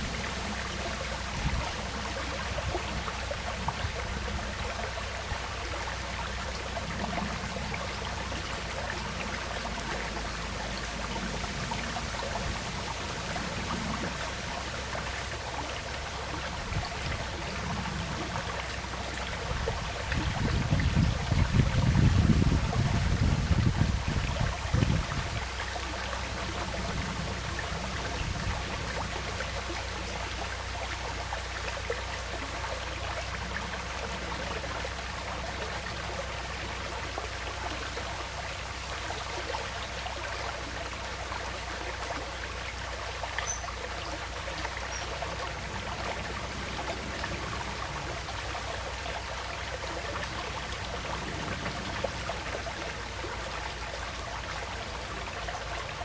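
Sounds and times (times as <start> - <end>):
stream flowing and trickling: 0.0 - 56.0
wind buffeting microphone: 19.4 - 25.6, 26.4 - 29.1.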